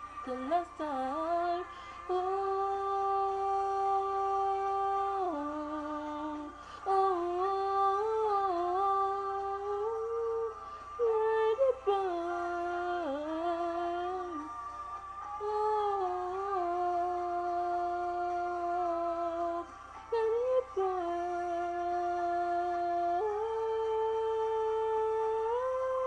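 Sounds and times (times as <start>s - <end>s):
girl singing wordless notes: 0.0s - 14.5s, 15.4s - 26.0s.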